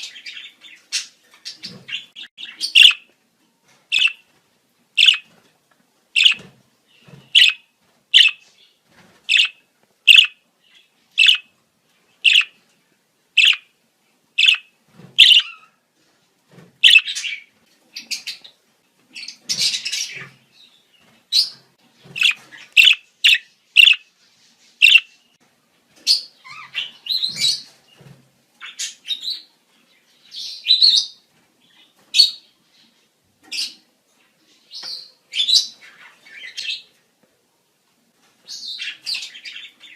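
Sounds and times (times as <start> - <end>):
budgerigars chirping and warbling: 0.0 - 3.1, 3.9 - 4.2, 5.0 - 5.3, 6.2 - 7.6, 8.2 - 8.5, 9.3 - 11.5, 12.2 - 12.6, 13.4 - 13.7, 14.4 - 15.8, 16.8 - 18.5, 19.2 - 20.4, 21.3 - 24.1, 24.8 - 25.2, 26.0 - 27.7.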